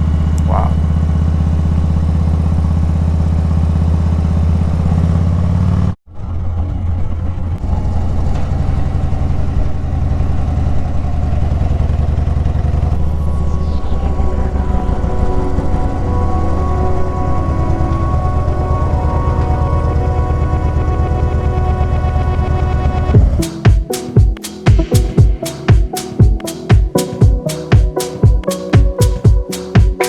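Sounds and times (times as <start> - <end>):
motorcycle engine running: 0.0 - 16.0, 18.9 - 23.9.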